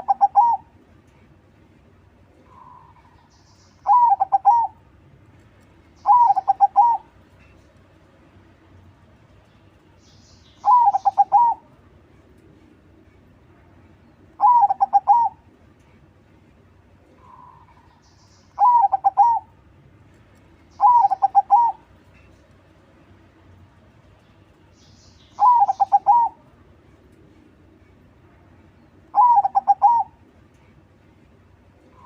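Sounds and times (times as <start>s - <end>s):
dove cooing: 0.0s - 0.7s, 3.8s - 4.8s, 6.0s - 7.1s, 10.6s - 11.6s, 14.4s - 15.4s, 18.6s - 19.5s, 20.8s - 21.8s, 25.4s - 26.4s, 29.1s - 30.2s.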